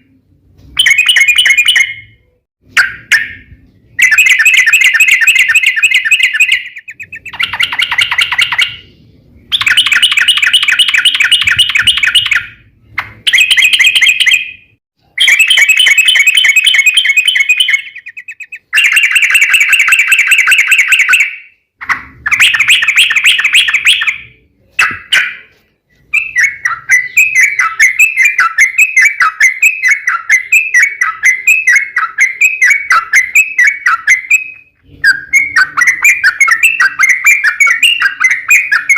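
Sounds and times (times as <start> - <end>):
bird quick chirping notes: 0.6 - 21.3
bird singing fast trills: 0.8 - 12.6, 13.2 - 21.6, 22.2 - 25.5, 26.1 - 38.9.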